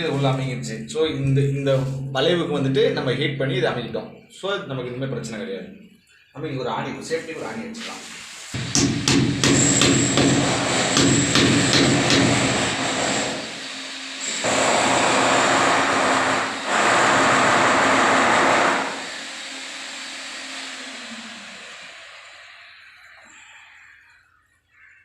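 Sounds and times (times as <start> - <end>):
power tool motor humming: 8.6 - 23.1.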